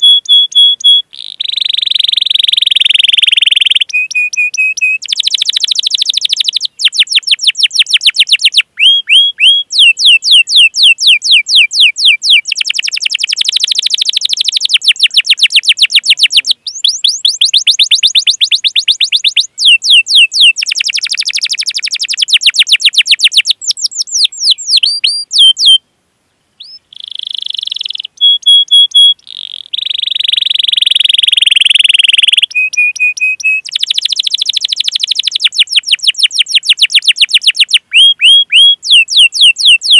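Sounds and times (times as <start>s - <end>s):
canary singing: 0.0s - 25.8s, 26.6s - 39.9s.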